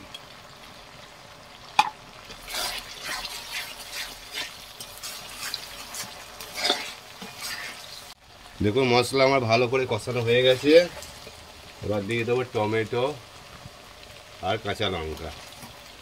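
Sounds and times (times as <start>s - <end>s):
paste frying in oil: 0.0s - 16.0s
spoon clacking on pan: 1.8s - 2.0s
metal spatula scraping wok: 2.3s - 8.2s.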